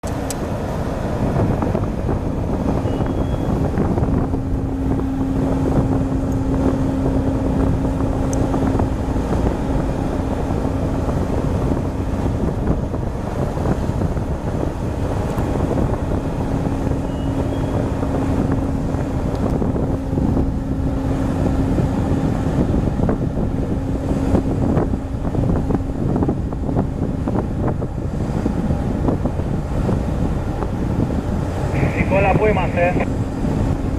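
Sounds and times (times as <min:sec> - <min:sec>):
ship rumble: 0:00.0 - 0:33.9
steady hum: 0:00.0 - 0:33.9
wind buffeting microphone: 0:00.0 - 0:33.9.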